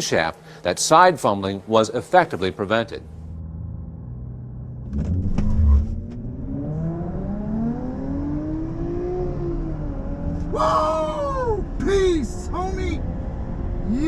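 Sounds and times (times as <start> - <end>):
car engine revving with pops: 4.8 - 10.5.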